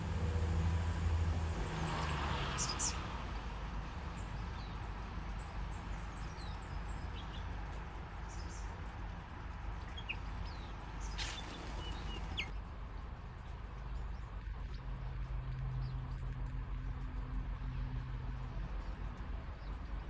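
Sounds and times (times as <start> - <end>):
small birds chirping: 4.1 - 12.7.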